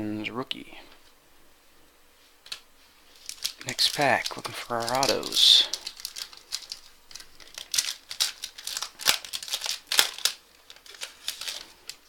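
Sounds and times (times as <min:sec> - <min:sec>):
card pack wrapper crackling: 0:02.5 - 0:12.0.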